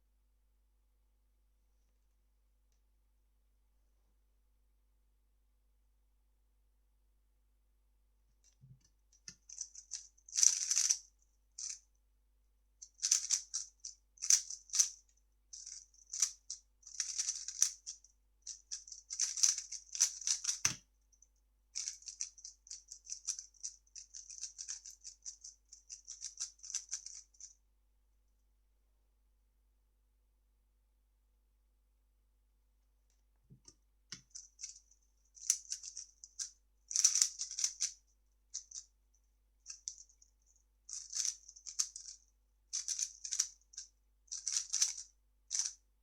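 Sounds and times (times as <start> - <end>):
puzzle cube plastic clicking: 15.6 - 18.0, 18.7 - 20.8, 36.9 - 37.9, 40.9 - 42.2, 44.4 - 45.7.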